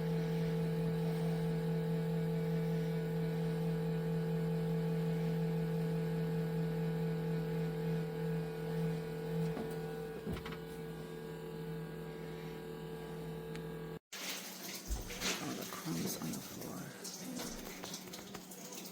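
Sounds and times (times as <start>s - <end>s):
oven fan motor hum: 0.0s - 14.0s.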